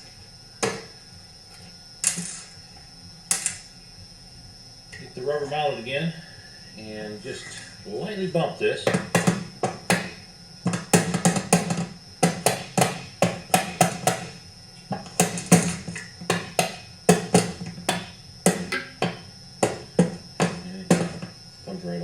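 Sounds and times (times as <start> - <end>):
rubber mallet tapping on metal plate: 8.9 - 21.3.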